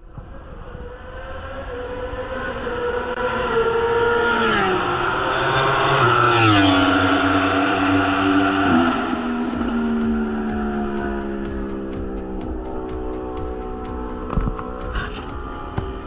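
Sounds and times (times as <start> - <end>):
racing motorcycle engine high revs: 0.6 - 16.0.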